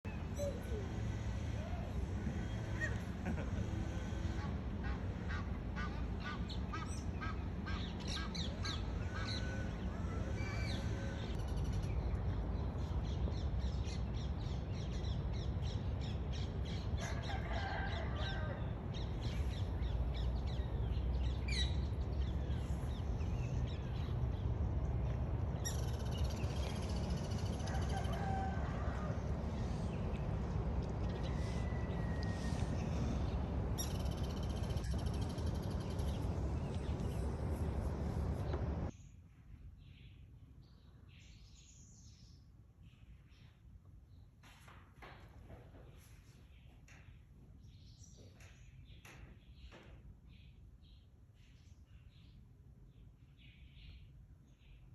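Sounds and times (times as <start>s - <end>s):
steady low rumble: 18.6s - 39.0s
birds chirping: 19.0s - 38.9s.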